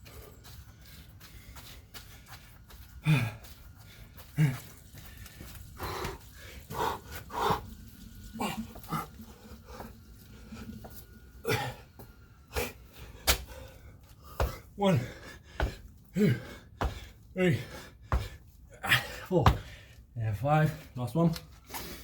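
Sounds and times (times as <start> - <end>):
man panting heavily: 0.0 - 7.8, 11.5 - 20.1
man grunting: 14.8 - 15.2, 16.1 - 16.5, 17.4 - 17.8, 18.8 - 19.7.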